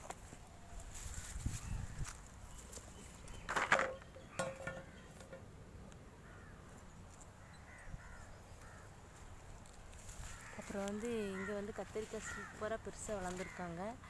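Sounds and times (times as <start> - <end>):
crow cawing: 6.2 - 6.8, 7.4 - 9.0, 10.2 - 14.0.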